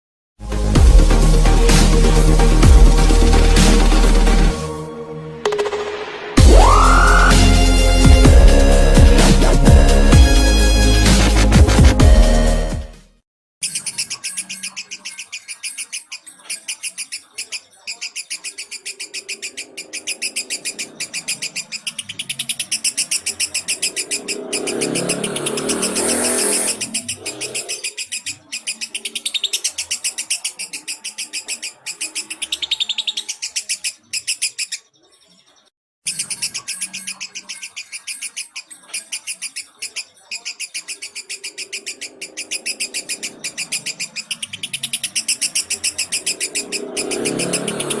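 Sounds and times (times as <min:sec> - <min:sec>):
lovebird chattering trill: 0:13.6 - 0:34.9, 0:36.1 - 0:48.0.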